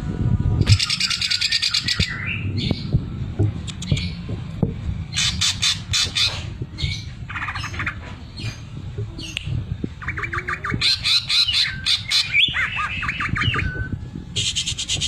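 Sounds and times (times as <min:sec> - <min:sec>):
bird rapid rattling trills: 0:00.7 - 0:03.0, 0:05.0 - 0:08.7, 0:10.0 - 0:15.0.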